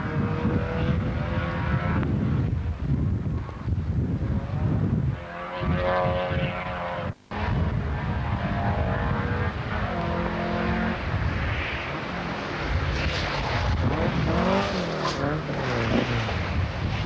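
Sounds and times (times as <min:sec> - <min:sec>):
car engine revving hard: 0:05.2 - 0:11.4, 0:12.0 - 0:16.6.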